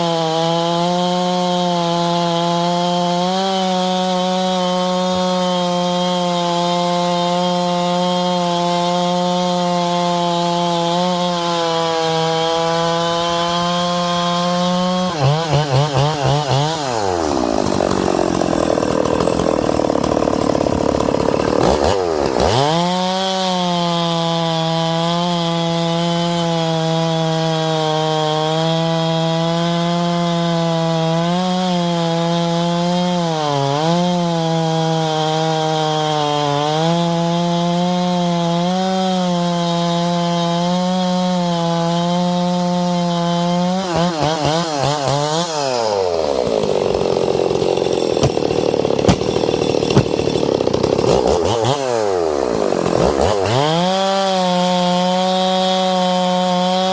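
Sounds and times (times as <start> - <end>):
chainsaw revving: 0.0 - 56.9.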